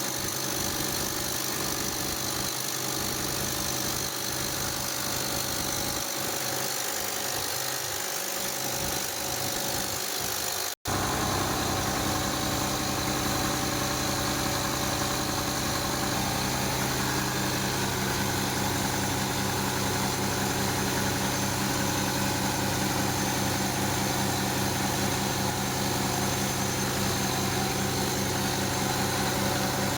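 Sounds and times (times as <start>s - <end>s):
diesel engine idling: 10.9s - 29.9s.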